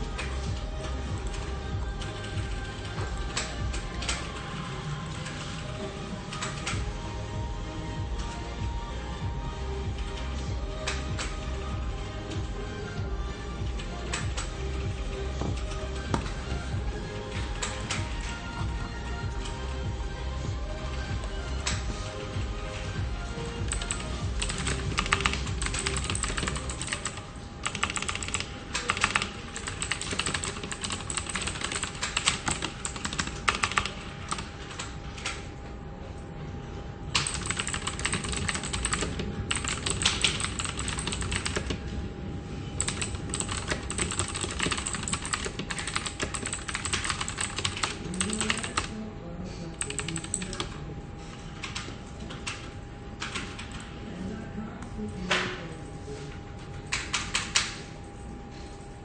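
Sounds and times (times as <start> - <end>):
fast typing on keyboard: 0.1 - 5.7, 23.6 - 35.4, 37.2 - 41.8, 42.8 - 49.0, 49.8 - 50.8, 53.2 - 53.8.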